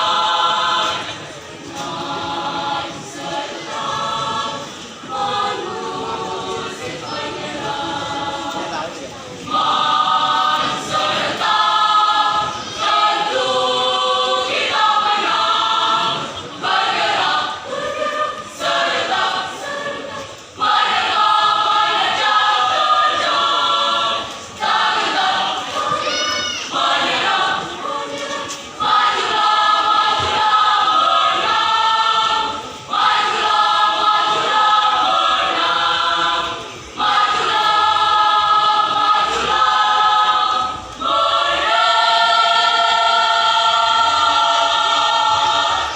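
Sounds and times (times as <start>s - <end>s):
choir singing in harmony: 0.0s - 45.9s.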